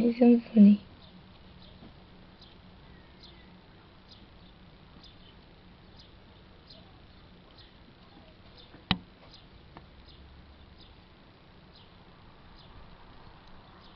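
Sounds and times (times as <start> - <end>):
faint bird chirps: 0.6 - 11.1.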